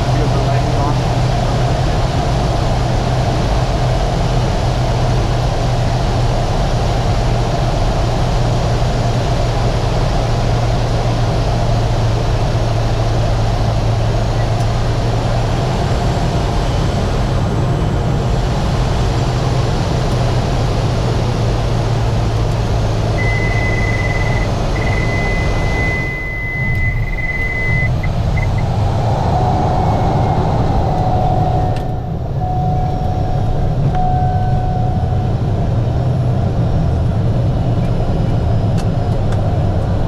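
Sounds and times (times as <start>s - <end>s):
aircraft engine drone: 0.0s - 40.0s
high steady tone: 23.2s - 35.6s
lower tone: 23.2s - 38.4s.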